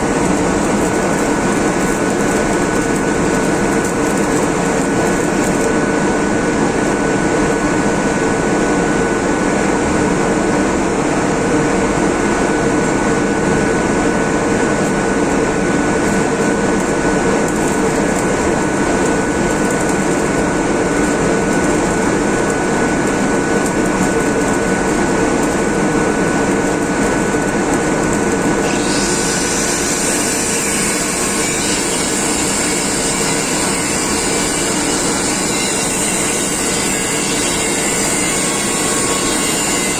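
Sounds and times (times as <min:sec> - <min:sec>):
machine motor whining: 0:00.0 - 0:06.4, 0:28.3 - 0:39.9.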